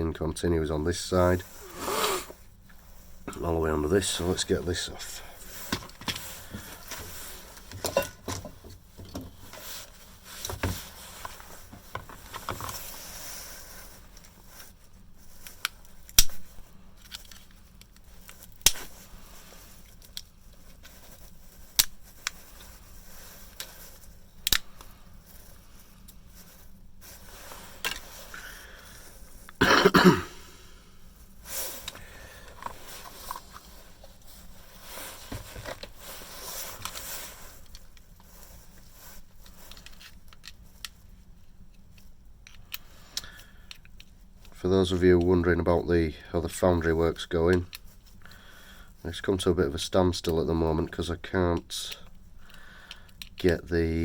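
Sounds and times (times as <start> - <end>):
hand tools clicking and scraping: 3.3 - 14.4
person coughing: 29.6 - 30.5.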